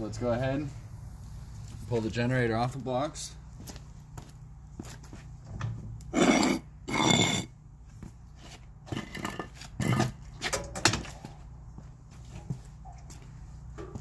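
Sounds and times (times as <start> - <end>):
generator scraping and clattering: 8.4 - 11.2.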